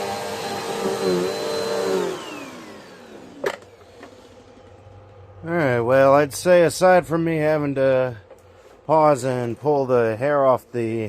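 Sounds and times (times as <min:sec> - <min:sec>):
vacuum cleaner motor whine: 0:00.0 - 0:05.0.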